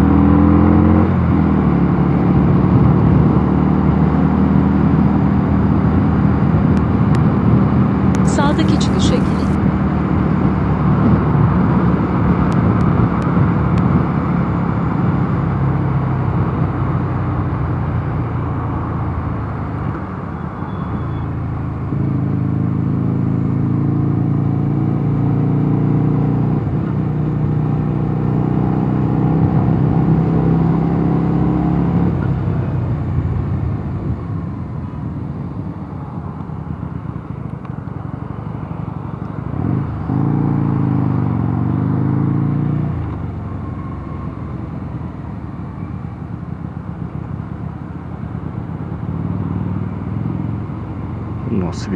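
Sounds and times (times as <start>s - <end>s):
motorcycle engine riding: 21.4s - 51.9s.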